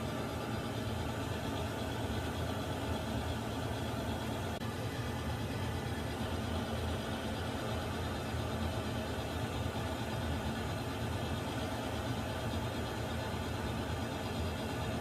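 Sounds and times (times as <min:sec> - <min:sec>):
water heater rumbling: 0:00.0 - 0:10.4.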